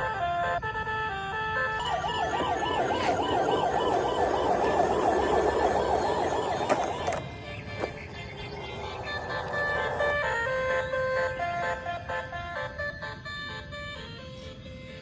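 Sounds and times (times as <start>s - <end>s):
fast warbling electronic siren: 1.7s - 11.9s
electronic beeping tune: 1.8s - 7.2s.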